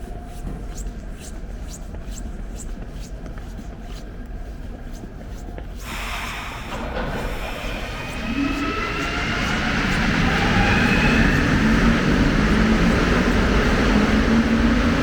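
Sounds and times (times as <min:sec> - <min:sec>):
metro train hissing into motion: 0:05.8 - 0:14.3
low station rumble: 0:05.8 - 0:15.0.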